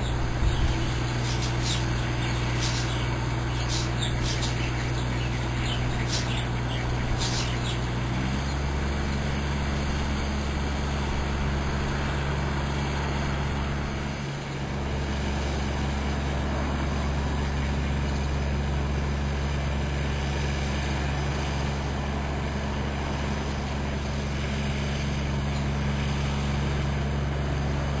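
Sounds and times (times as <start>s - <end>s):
bird chirps: 0.0s - 8.7s
moving vehicle drone: 0.0s - 28.0s.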